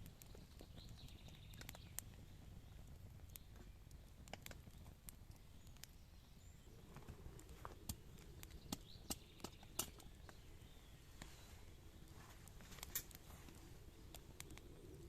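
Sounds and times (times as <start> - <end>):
faint clicks and taps: 3.2 - 6.0, 12.4 - 14.7.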